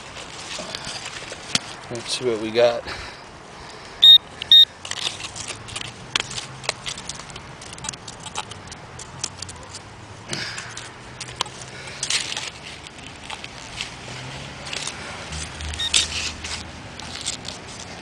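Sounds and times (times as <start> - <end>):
stones clinking and scraping: 0.0 - 1.9, 4.8 - 18.0
digging in gravel and mud: 0.0 - 18.0
metal detector beeping: 4.0 - 4.7, 15.7 - 16.1.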